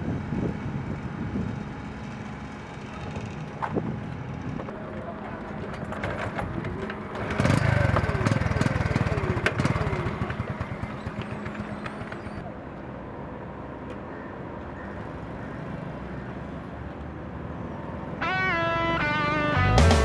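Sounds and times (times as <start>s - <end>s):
motorcycle engine running: 2.8s - 12.4s.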